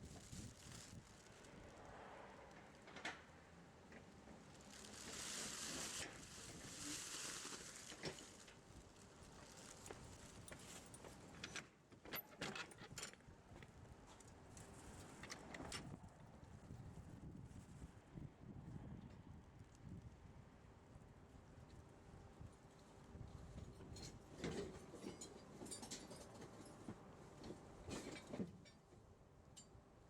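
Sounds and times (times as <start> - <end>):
soft hissing rustle: 4.4 - 10.9.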